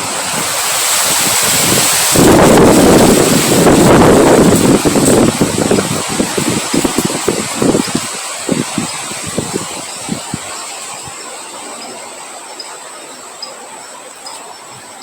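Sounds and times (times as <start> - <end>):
wind gusting against microphone: 0.0 - 15.0
thin steady high tone: 5.5 - 15.0.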